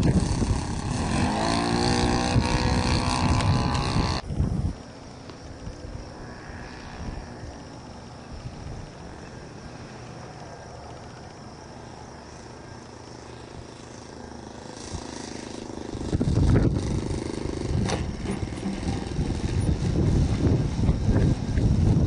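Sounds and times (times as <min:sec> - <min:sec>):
wind buffeting microphone: 0:00.0 - 0:09.8, 0:14.8 - 0:22.0
model airplane engine drone: 0:00.0 - 0:22.0.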